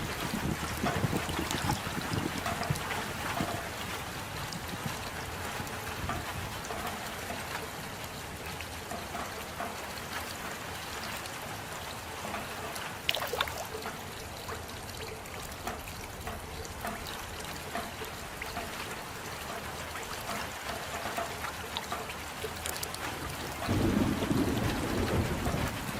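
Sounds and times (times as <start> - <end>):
steady rain: 0.0 - 25.9
trickling water: 0.0 - 25.9
water drops striking close by: 0.4 - 3.7, 6.0 - 7.7, 12.2 - 25.7.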